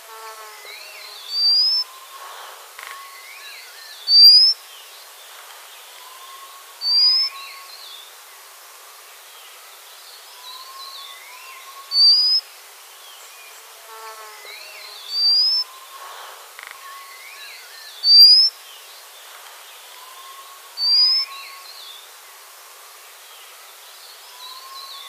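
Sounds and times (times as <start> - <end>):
faint calls of other birds: 0.0 - 25.0
bird whistled call: 1.4 - 2.0, 11.7 - 12.4, 15.2 - 15.7, 18.0 - 18.5, 20.0 - 21.4.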